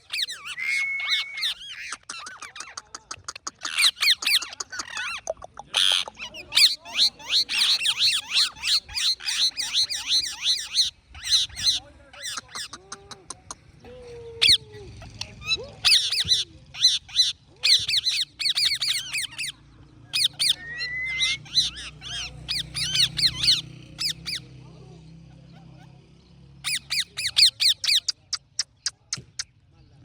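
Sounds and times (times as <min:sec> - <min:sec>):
parrots chirping: 0:00.0 - 0:13.8, 0:14.4 - 0:24.5, 0:26.6 - 0:29.5
parrot rising whistle: 0:00.3 - 0:01.6, 0:20.5 - 0:21.6.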